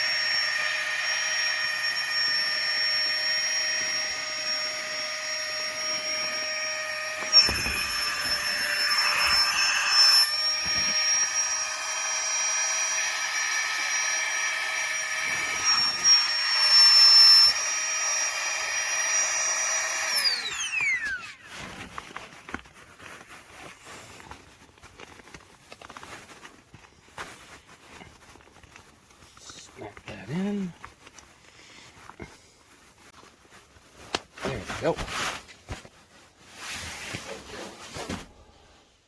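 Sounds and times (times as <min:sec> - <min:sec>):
air pump whining: 0:00.0 - 0:33.5
faint handling sounds: 0:21.4 - 0:38.9.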